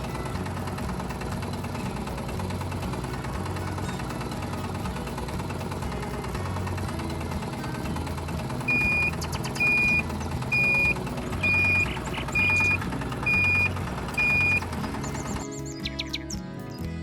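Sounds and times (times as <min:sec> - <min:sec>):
engine hum: 0:00.0 - 0:17.0
reversing alarm beeping: 0:08.7 - 0:14.6.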